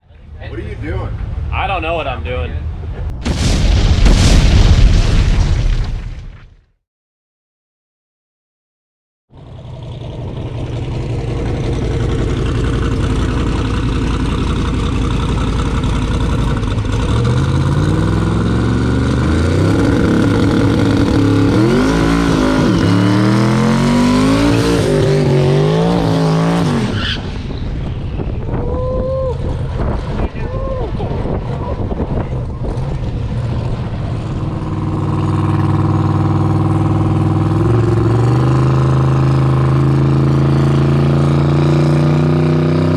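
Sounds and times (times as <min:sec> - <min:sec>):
car engine at full throttle: 0:09.3 - 0:42.9.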